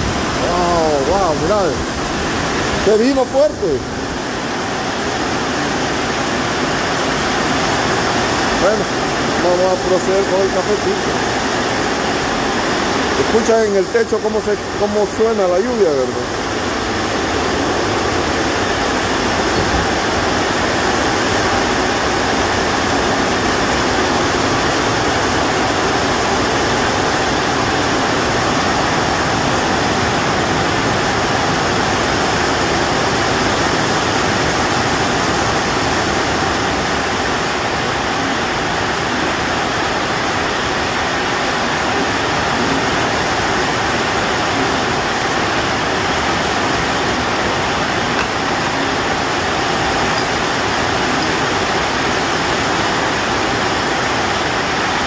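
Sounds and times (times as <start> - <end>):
heavy rain on a roof: 0.0 - 55.0.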